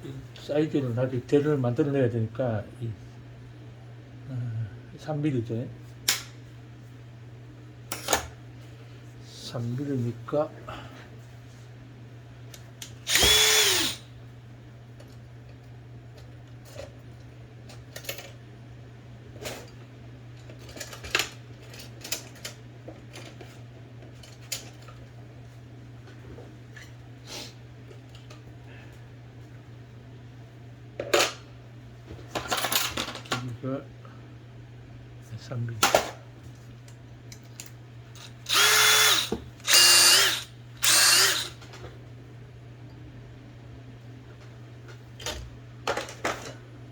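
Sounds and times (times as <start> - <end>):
steady low hum: 0.0 - 23.0, 23.6 - 46.9
small electric power tool: 13.0 - 14.1, 38.4 - 41.6.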